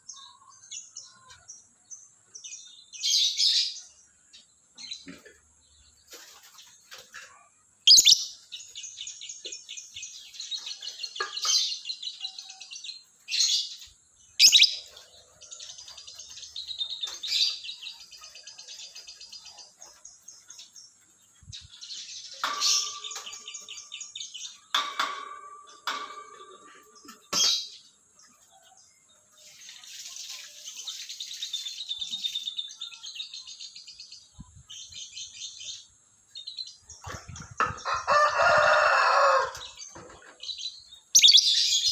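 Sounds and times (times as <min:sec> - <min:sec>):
lovebird trilling: 0:07.9 - 0:08.3, 0:14.4 - 0:14.8, 0:41.2 - 0:41.9.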